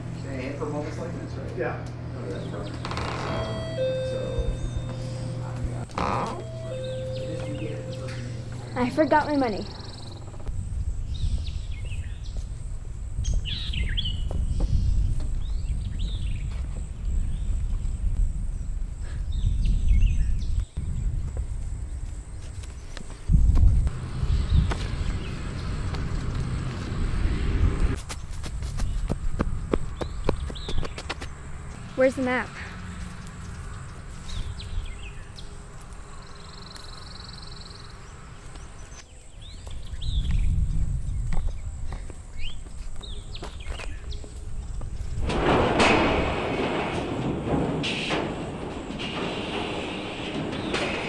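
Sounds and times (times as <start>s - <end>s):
low outdoor rumble: 0.0s - 28.0s, 28.9s - 51.0s
birds chirping and calling: 2.2s - 10.5s
low rumble: 23.3s - 28.0s.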